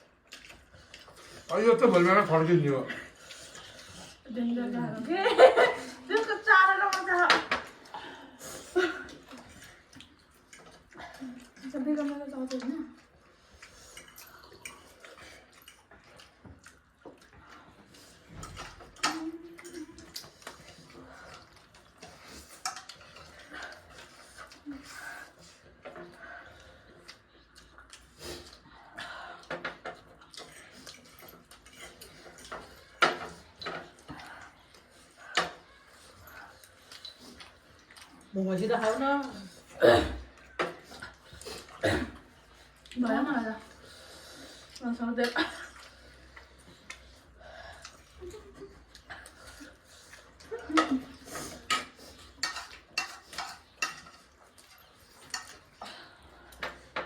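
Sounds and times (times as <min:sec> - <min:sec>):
cutlery and plates clinking: 0:29.5 - 0:34.2, 0:50.7 - 0:55.8.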